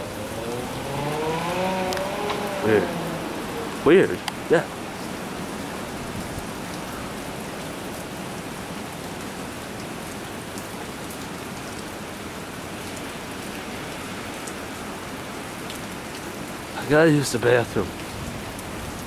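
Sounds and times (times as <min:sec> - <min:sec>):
rain hissing: 0:00.0 - 0:19.0
faint raindrop ticks: 0:01.9 - 0:02.5, 0:04.2 - 0:04.5, 0:09.2 - 0:12.0, 0:12.8 - 0:14.6, 0:15.6 - 0:16.3.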